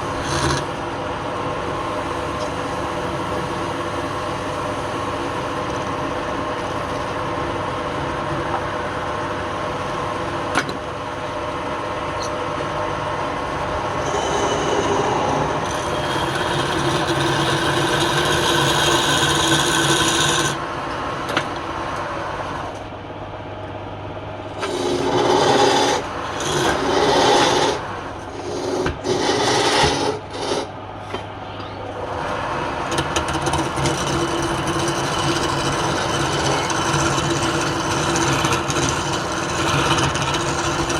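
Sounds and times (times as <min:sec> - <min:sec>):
tool scraping spinning wood: 0:00.0 - 0:01.0, 0:09.2 - 0:20.6, 0:24.5 - 0:30.8, 0:32.0 - 0:40.9
lathe motor hum: 0:00.0 - 0:40.9.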